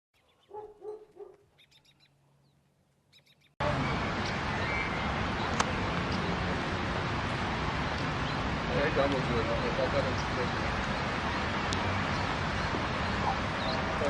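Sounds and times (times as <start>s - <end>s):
loud steady rushing noise: 3.6s - 14.0s.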